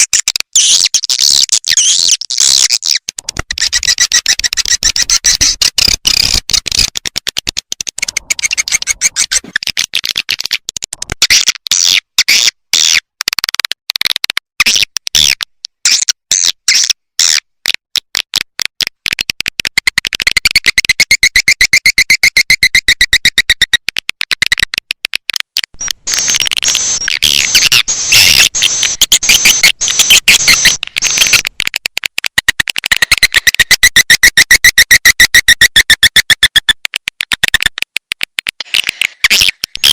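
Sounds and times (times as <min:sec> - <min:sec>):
rapid high bird chirps: 0:00.6 - 0:06.9, 0:08.0 - 0:09.7, 0:25.8 - 0:31.4.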